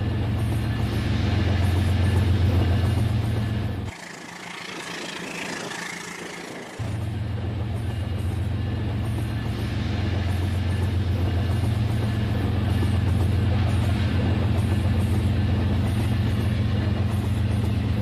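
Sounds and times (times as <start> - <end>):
toy train motor humming: 3.9 - 7.0.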